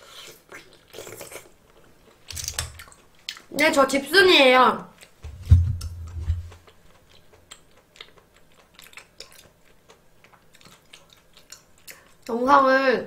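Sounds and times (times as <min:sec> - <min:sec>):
mouth chewing clicks and smacks: 0:00.1 - 0:03.6, 0:06.1 - 0:12.4
low thump: 0:05.2 - 0:06.5.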